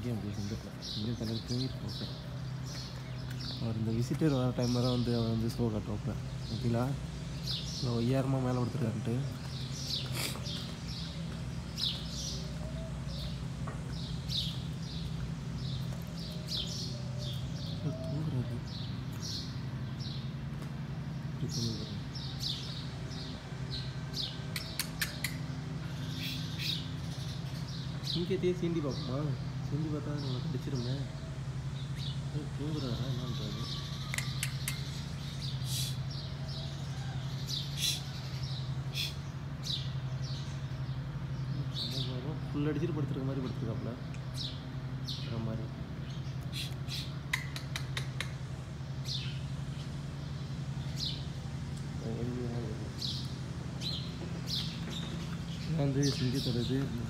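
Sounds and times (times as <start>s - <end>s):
small bird chirping: 0.0s - 42.7s, 43.3s - 57.0s
steady low hum: 0.0s - 57.0s.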